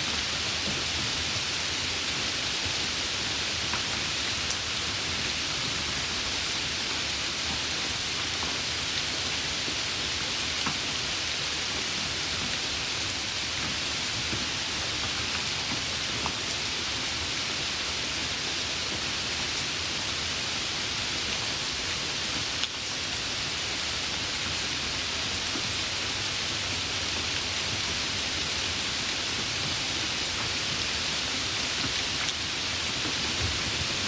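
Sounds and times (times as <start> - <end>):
heavy rain hissing: 0.0 - 34.0.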